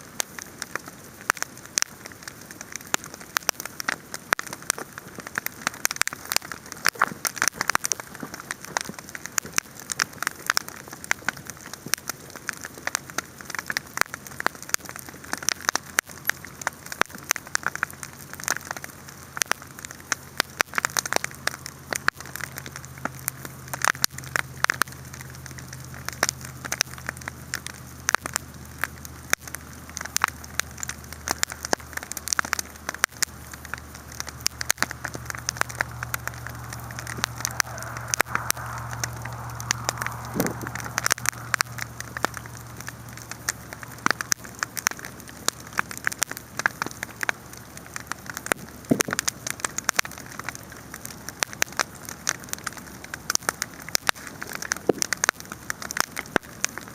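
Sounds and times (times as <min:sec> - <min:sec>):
low steady hum: 0:00.0 - 0:49.6
campfire crackling and popping: 0:00.0 - 0:56.9.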